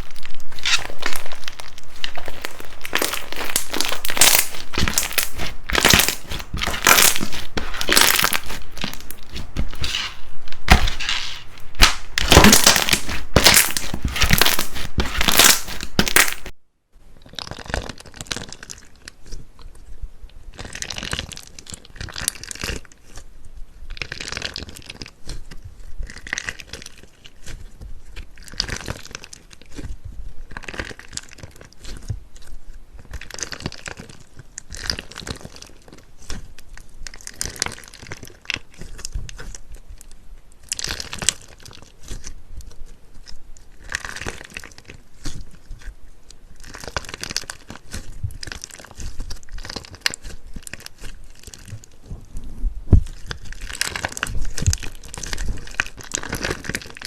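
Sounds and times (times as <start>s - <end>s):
crunchy slime crackling when squeezed: 0.0s - 16.5s.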